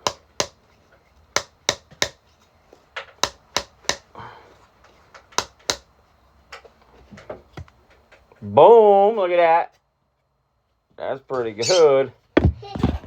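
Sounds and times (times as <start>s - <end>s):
hammer striking bolt into wood: 0.0s - 0.6s, 1.4s - 2.2s, 3.2s - 4.1s, 5.3s - 5.9s.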